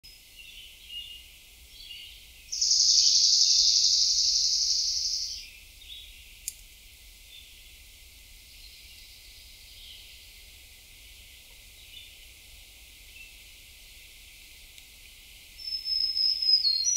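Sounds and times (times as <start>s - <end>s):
small birds chirping: 0.1s - 6.6s, 8.4s - 16.9s
songbird high trill: 2.5s - 5.5s, 15.6s - 16.9s.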